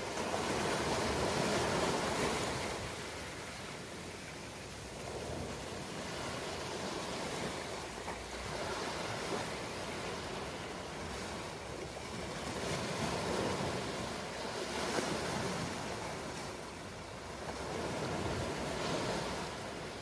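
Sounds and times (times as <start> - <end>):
ocean waves washing ashore: 0.0 - 20.0.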